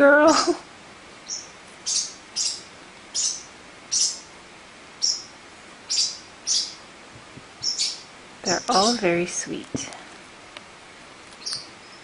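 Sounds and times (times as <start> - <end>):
lovebirds chirping: 1.2 - 4.3, 5.0 - 6.9, 7.5 - 9.9, 11.3 - 12.0.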